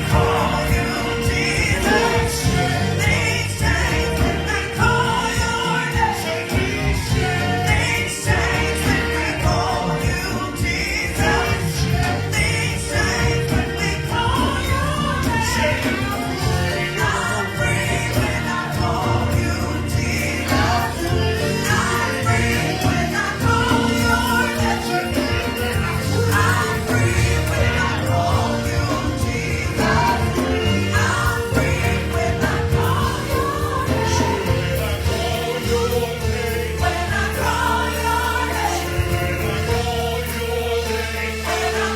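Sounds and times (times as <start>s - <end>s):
gospel choir singing: 0.0s - 41.9s
instrumental accompaniment with bass: 0.0s - 41.9s.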